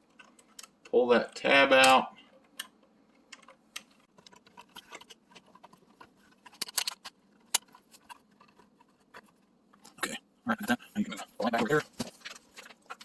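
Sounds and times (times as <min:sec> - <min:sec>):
cable handling noise: 0:01.7 - 0:10.0, 0:11.6 - 0:13.0.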